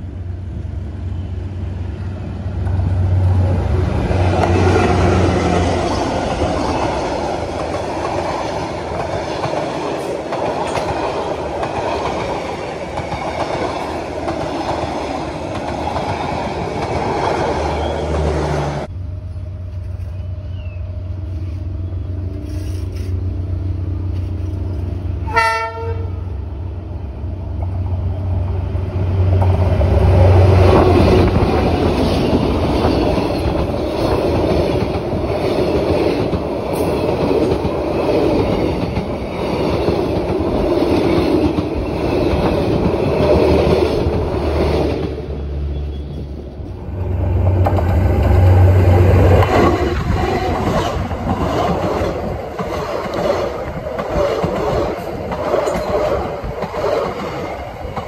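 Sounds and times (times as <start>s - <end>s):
train wheels on rails: 0.0s - 26.1s, 27.2s - 58.0s
diesel train engine drone: 0.0s - 58.0s
train horn blast: 25.2s - 26.3s.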